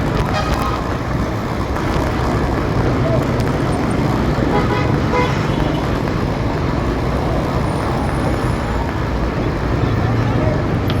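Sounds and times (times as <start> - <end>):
city traffic noise: 0.0 - 11.0
horn toot: 4.5 - 5.9.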